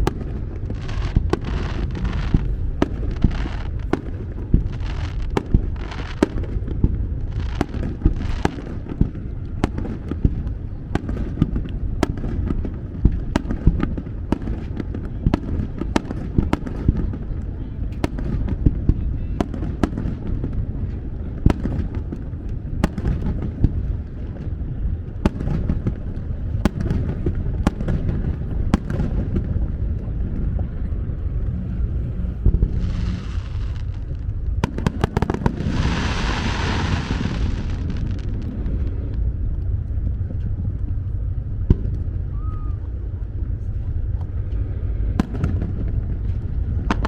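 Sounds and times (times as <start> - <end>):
fireworks crackling hiss: 0.0 - 6.7, 7.3 - 8.9, 32.4 - 39.2
fireworks sharp bangs: 0.0 - 24.5, 25.2 - 30.7, 32.3 - 39.1, 45.2 - 47.0
low rumble of booms: 0.0 - 47.0.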